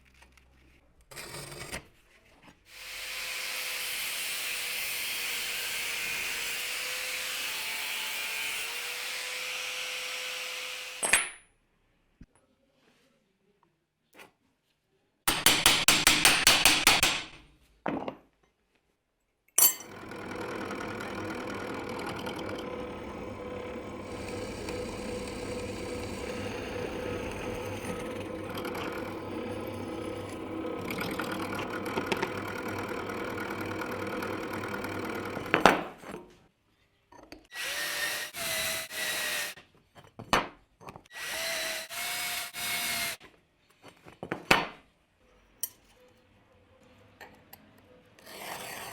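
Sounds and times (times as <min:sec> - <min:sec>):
power tools cutting wood: 0:02.7 - 0:11.0, 0:19.8 - 0:36.0, 0:37.5 - 0:39.6, 0:41.1 - 0:43.2.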